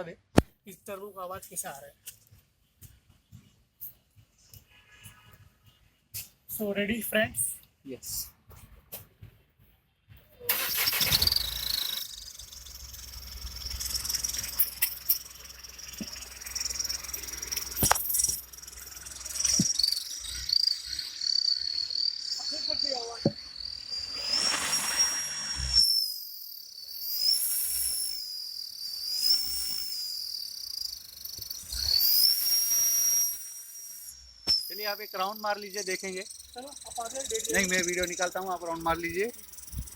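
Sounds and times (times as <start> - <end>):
turbo whistle: 10.5 - 39.9.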